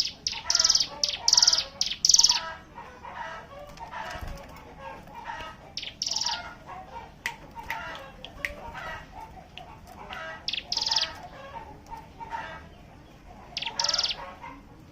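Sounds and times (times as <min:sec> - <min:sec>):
rapid buzzing bird trills: 0:00.0 - 0:02.6, 0:05.1 - 0:12.0, 0:13.6 - 0:14.4
birds chirping and warbling: 0:00.0 - 0:14.9.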